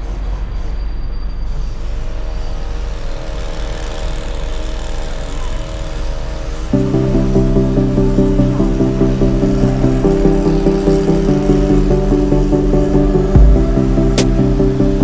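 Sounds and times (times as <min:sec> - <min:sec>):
faint music: 0:00.0 - 0:15.0
low vehicle rumble: 0:05.4 - 0:15.0.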